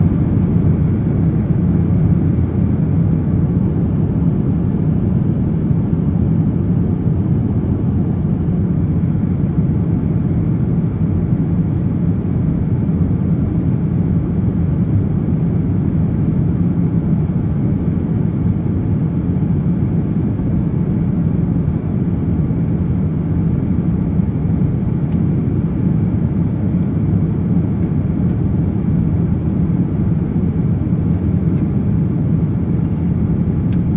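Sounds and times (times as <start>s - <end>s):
airplane cabin drone: 0.0s - 33.9s.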